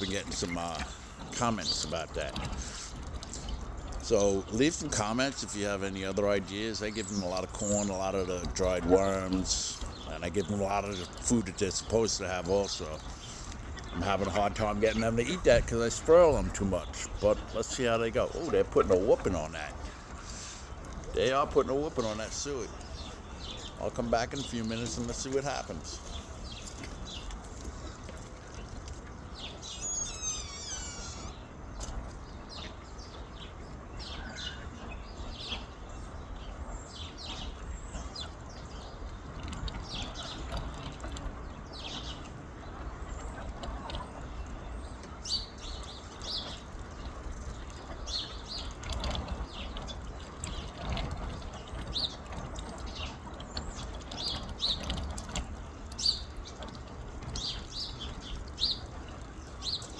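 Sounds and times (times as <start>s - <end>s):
bird warbling song: 0.0s - 59.9s
birds chirping: 0.0s - 59.9s.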